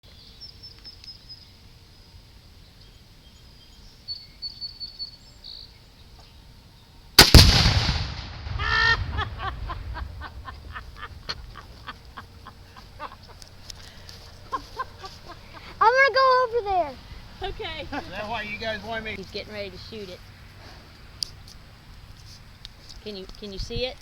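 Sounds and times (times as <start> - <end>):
rifle shot and explosion boom: 7.2 - 11.3
poultry squawking: 8.6 - 9.3.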